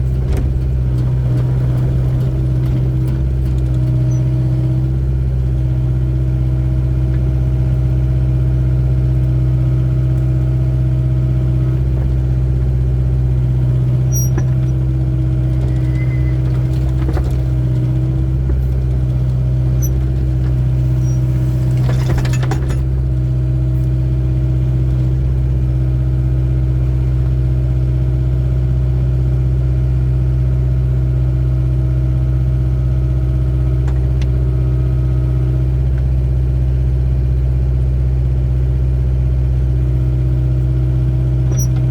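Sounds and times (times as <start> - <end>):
diesel engine droning: 0.0 - 41.9
scraping clatter: 14.0 - 23.1.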